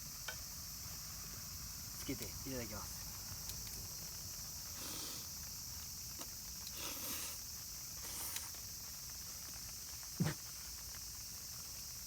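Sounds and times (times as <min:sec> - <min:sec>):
crickets and insects trilling: 0:00.0 - 0:12.0
soft muffled thuds: 0:10.2 - 0:10.4.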